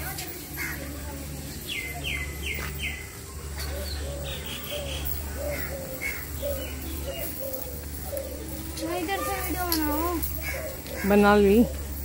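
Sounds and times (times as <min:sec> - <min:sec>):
low repeated bird notes: 0:00.0 - 0:12.0
steady low hum: 0:00.0 - 0:12.0
buzzy bird trill: 0:00.4 - 0:12.0.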